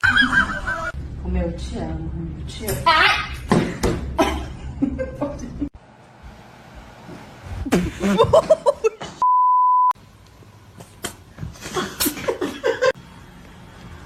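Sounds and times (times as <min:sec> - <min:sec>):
censor bleep: 0:09.2 - 0:10.0.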